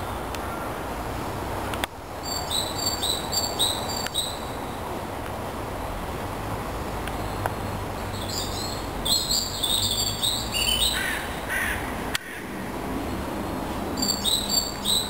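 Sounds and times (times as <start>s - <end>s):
outdoor background: 0.0s - 15.0s
lower bird calls: 2.2s - 4.6s, 14.0s - 15.0s
birds chirping: 7.1s - 12.4s, 14.0s - 15.0s.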